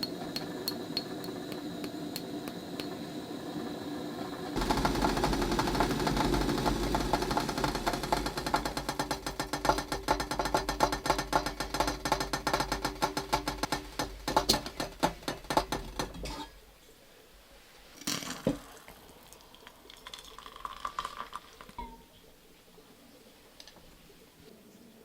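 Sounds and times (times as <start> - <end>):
fast rattle of clicks: 4.6 - 16.3.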